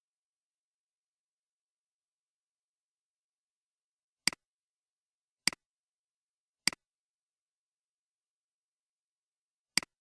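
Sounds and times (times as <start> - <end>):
computer mouse clicks: 4.2 - 4.5, 5.4 - 5.6, 6.6 - 6.9, 9.8 - 10.0.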